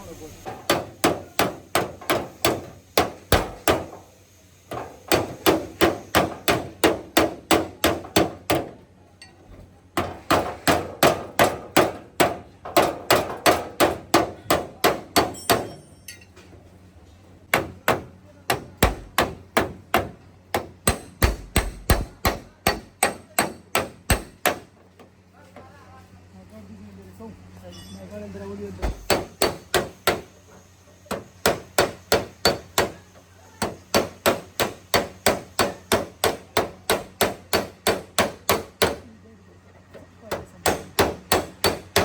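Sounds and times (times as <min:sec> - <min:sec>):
hammer beating car body metal: 0:00.5 - 0:08.8, 0:10.0 - 0:15.9, 0:17.5 - 0:24.8, 0:28.8 - 0:30.3, 0:31.1 - 0:39.1, 0:40.3 - 0:42.0.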